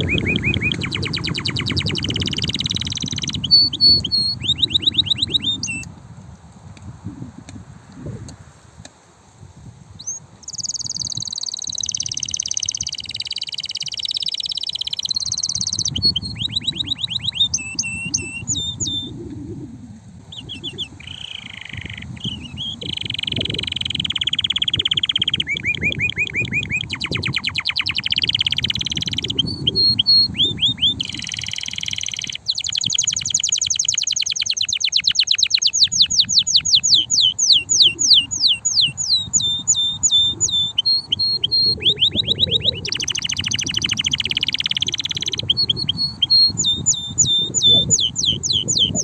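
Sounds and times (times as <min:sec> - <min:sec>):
canary singing trills: 0:00.0 - 0:05.9, 0:10.0 - 0:49.0.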